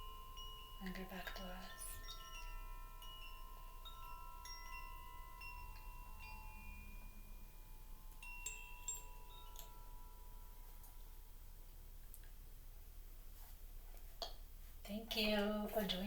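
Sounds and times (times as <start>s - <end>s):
wind chimes ringing: 0.0s - 11.7s.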